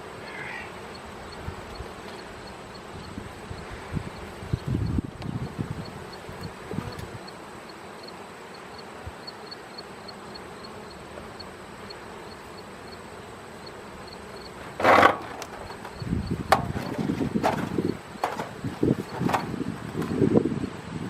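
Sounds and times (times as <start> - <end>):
honeybees humming: 0.0 - 21.0
loud scrape: 14.6 - 16.0
wooden knocks and clunks: 14.6 - 20.2.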